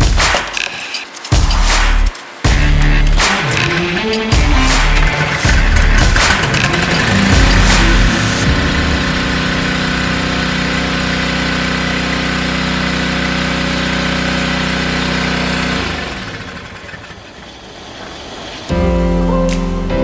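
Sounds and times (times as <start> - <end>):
small gas engine running: 5.0 - 17.7.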